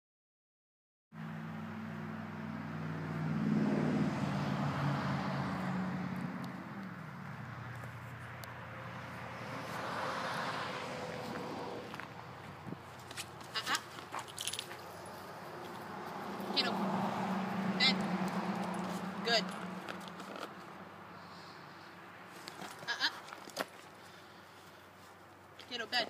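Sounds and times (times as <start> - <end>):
vehicle engine running: 11.1 - 21.8.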